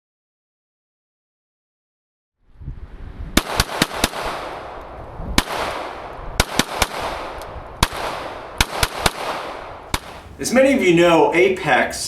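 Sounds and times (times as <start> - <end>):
pistol shots: 3.4 - 4.7, 5.4 - 10.4.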